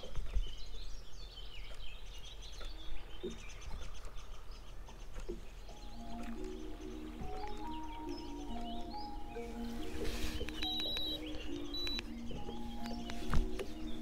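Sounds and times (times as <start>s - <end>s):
songbirds singing: 0.0s - 14.0s
held musical notes: 5.7s - 14.0s.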